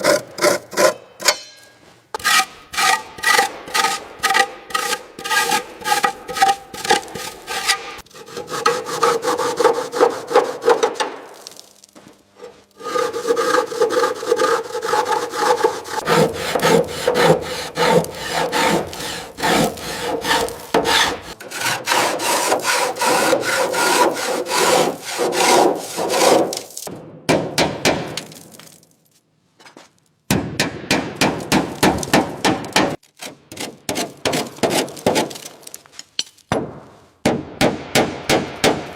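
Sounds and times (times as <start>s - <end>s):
hand tool rasping strokes: 0.0s - 11.1s, 12.3s - 26.9s.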